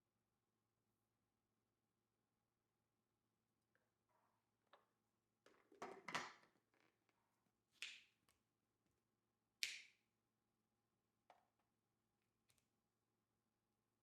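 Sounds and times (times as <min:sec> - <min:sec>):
kitchen things clicking and tapping: 0:05.5 - 0:06.5.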